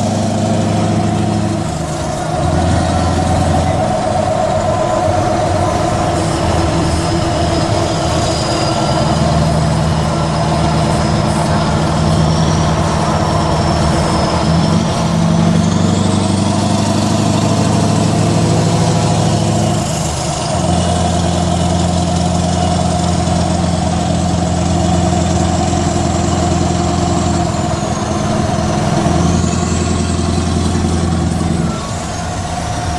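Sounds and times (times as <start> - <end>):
truck engine running: 0.0 - 32.9
thin high whistle: 2.2 - 15.0.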